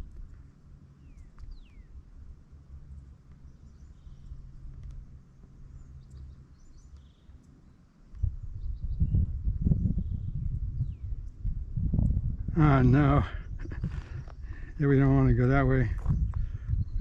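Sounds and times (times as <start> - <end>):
low rumble: 8.1 - 17.0.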